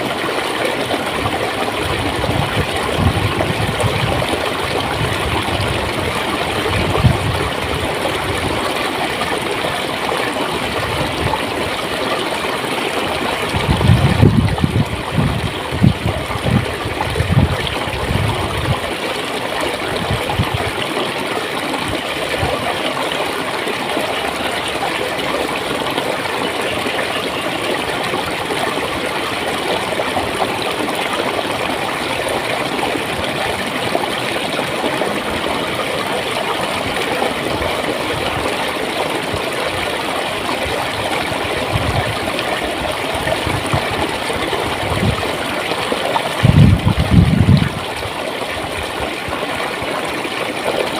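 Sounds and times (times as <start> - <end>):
water flowing and gurgling: 0.0 - 50.9.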